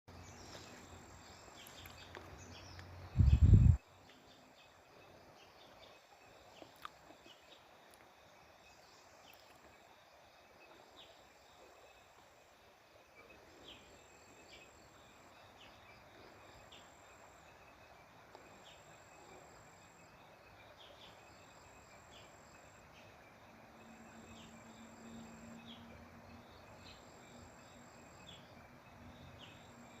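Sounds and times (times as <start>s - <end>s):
wind buffet on microphone: 3.1s - 3.8s.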